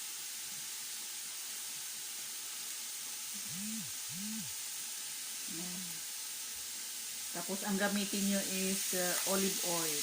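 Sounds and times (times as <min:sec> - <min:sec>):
pan sizzling: 0:00.0 - 0:10.0
person humming: 0:03.4 - 0:04.6, 0:05.5 - 0:06.0.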